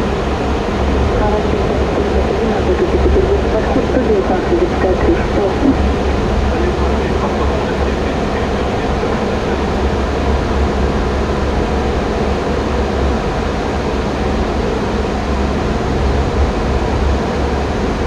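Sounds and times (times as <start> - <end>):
cockpit airflow and air conditioning: 0.0 - 18.0.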